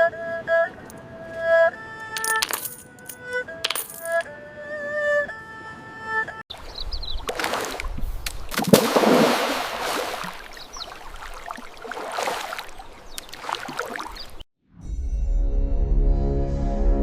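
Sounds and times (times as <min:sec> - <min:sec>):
water splashing and sloshing: 0:06.5 - 0:14.5.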